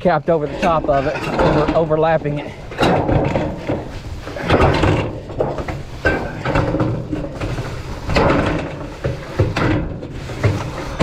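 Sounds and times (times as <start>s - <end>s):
metal scraping on metal roof: 0.0s - 11.0s.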